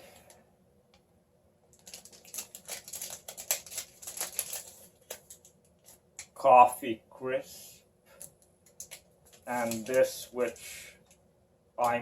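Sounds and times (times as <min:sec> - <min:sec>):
plastic wrappers crackling: 0:01.7 - 0:06.3, 0:08.2 - 0:10.7.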